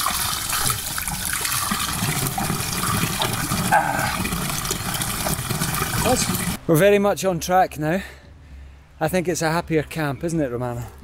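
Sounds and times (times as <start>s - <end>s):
running water splashing: 0.0s - 6.6s.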